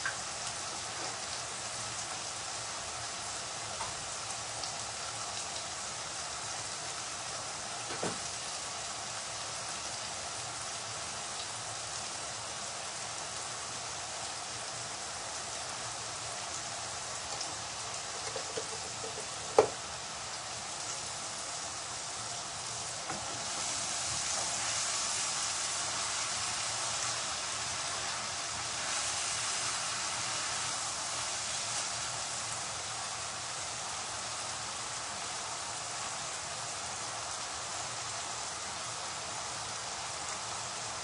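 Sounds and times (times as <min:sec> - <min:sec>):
spices sizzling in a pan: 0:00.0 - 0:41.0.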